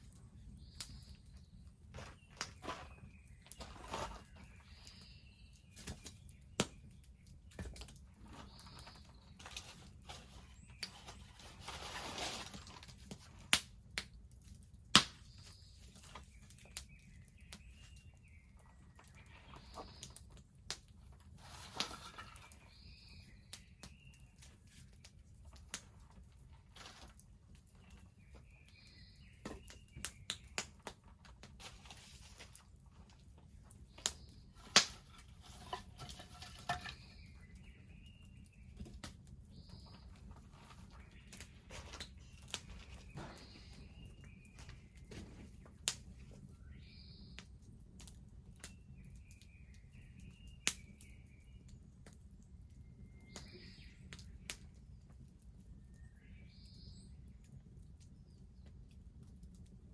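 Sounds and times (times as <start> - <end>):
bonfire crackling and popping: 4.2 - 10.9, 12.8 - 38.3.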